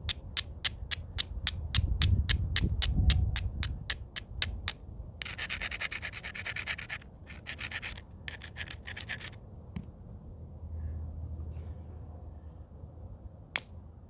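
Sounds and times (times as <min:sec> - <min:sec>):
stone scraping stone edge: 0:04.1 - 0:09.4.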